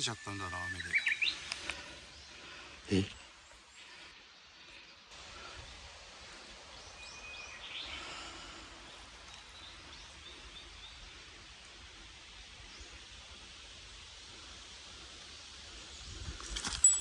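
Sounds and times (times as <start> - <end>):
small birds chirping and whistling: 0.0 - 3.3
wind in trees: 0.0 - 17.0.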